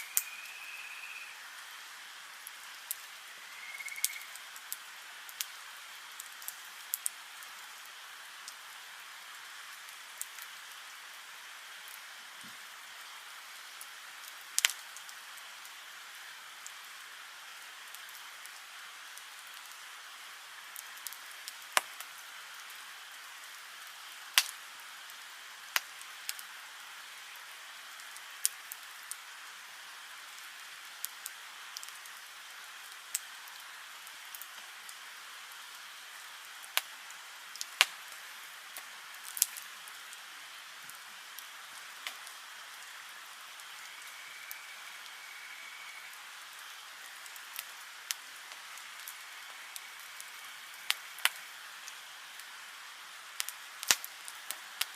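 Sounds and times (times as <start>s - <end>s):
fire hiss: 0.0s - 54.9s
wood fire crackling and popping: 4.0s - 7.5s, 9.9s - 10.7s, 13.8s - 15.2s, 20.7s - 22.7s, 24.3s - 24.6s, 25.7s - 26.5s, 32.8s - 35.6s, 36.6s - 40.0s, 40.8s - 42.8s, 46.6s - 52.5s, 53.4s - 54.9s.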